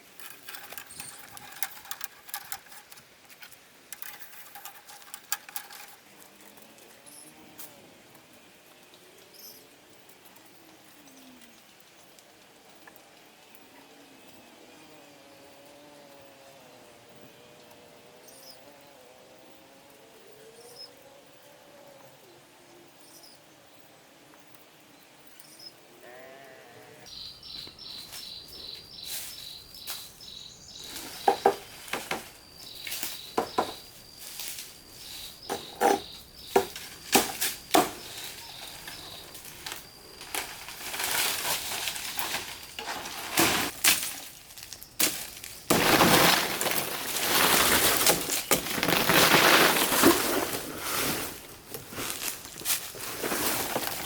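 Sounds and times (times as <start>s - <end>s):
continuous clatter and rustle: 0.0s - 13.7s, 27.6s - 54.0s
knocks and clattering: 30.9s - 32.4s, 33.3s - 33.9s, 35.5s - 43.8s.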